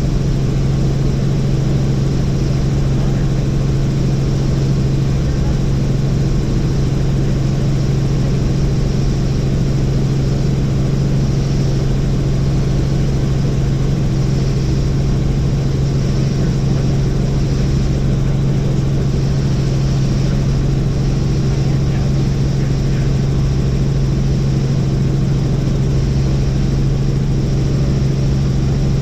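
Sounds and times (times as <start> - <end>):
helicopter engine and rotor drone: 0.0 - 29.0.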